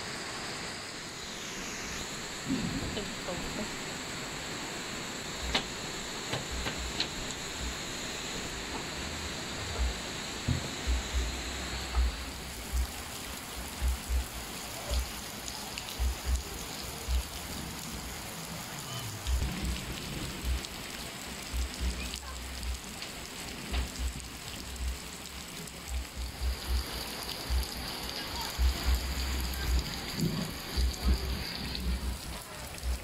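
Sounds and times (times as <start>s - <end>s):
steady rain falling: 0.0s - 33.0s
low thumps: 9.6s - 13.0s.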